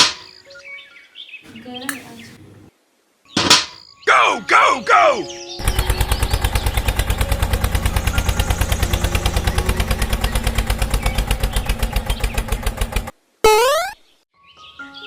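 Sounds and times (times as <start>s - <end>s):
tractor engine putter: 0.0s - 0.4s, 1.5s - 2.7s, 5.6s - 13.1s.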